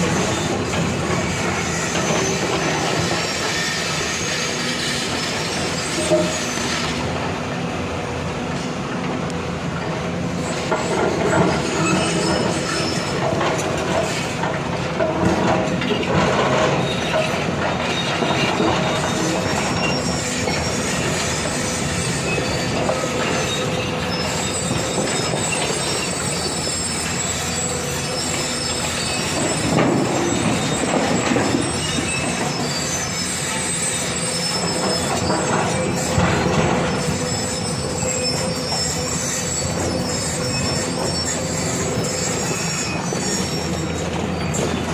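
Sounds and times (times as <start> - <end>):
metallic squealing: 0.0 - 7.1, 16.4 - 44.9
diesel engines running: 0.0 - 44.9.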